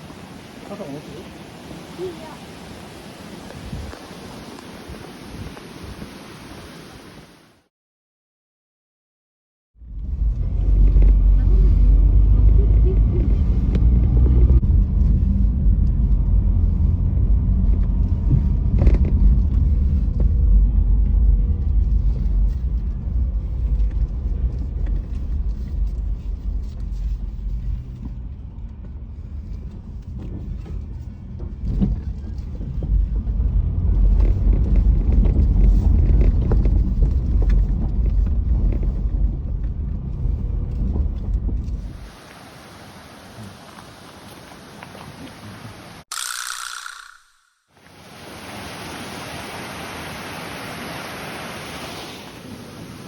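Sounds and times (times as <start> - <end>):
car road rumble: 9.8 - 46.0.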